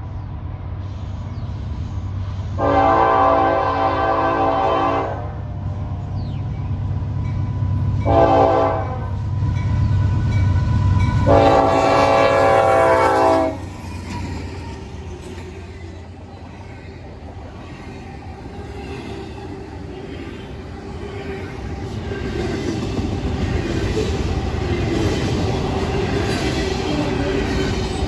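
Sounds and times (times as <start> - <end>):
low rumble of locomotive: 0.0 - 28.0
locomotive air horn: 2.6 - 5.4, 8.1 - 9.2, 11.2 - 13.6.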